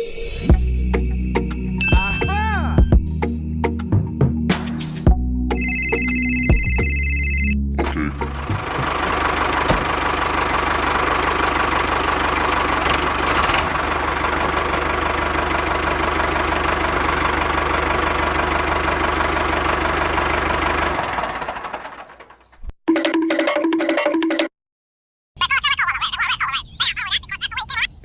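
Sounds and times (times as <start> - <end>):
tractor engine running: 5.5 - 22.7.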